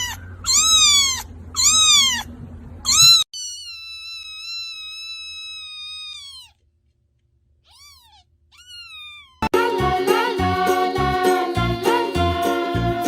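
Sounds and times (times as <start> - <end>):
cat meowing: 0.0 - 6.6, 7.6 - 9.5.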